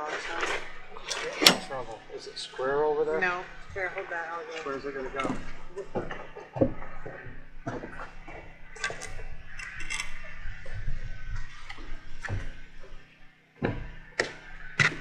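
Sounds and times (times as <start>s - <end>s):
light knocks and clicks: 0.4s - 2.0s.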